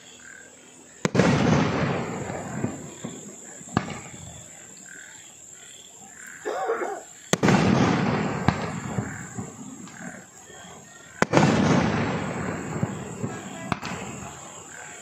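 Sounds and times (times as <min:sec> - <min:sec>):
firework crackling: 0:00.0 - 0:15.0
firework bangs: 0:01.0 - 0:04.8, 0:07.2 - 0:15.0.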